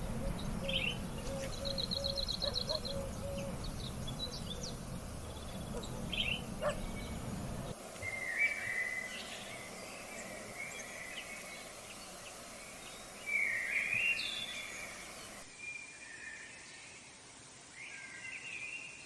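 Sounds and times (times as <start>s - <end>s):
steady low rumble: 0.0s - 7.8s
birds calling: 0.0s - 15.5s.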